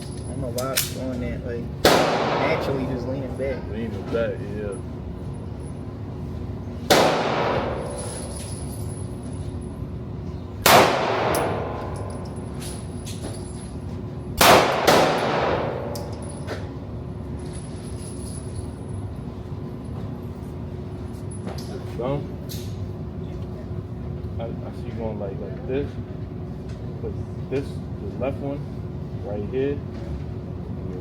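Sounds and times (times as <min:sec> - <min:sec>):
handgun shots with echo: 0:01.8 - 0:02.7, 0:06.9 - 0:08.0, 0:10.6 - 0:12.0, 0:14.4 - 0:16.1.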